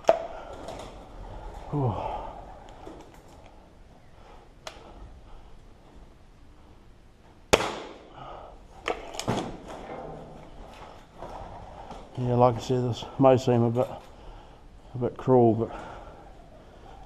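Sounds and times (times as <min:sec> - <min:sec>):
sharp gunshot: 0:07.5 - 0:08.1.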